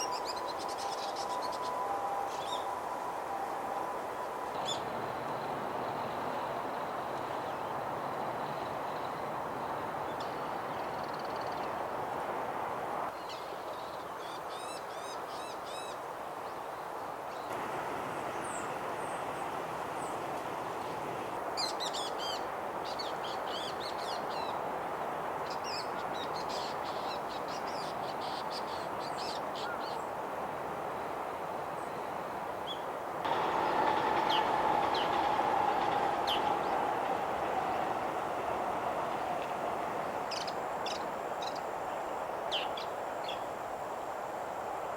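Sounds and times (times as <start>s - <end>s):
steady background hum: 17.5s - 21.5s.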